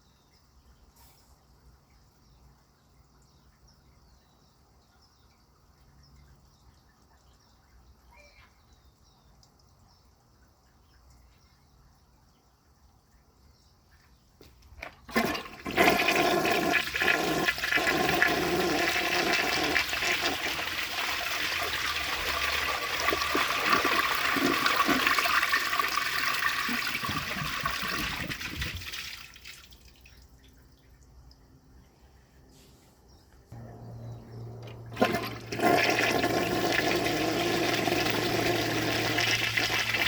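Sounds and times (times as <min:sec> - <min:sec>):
toilet flushing: 0:15.1 - 0:29.7, 0:34.5 - 0:40.0.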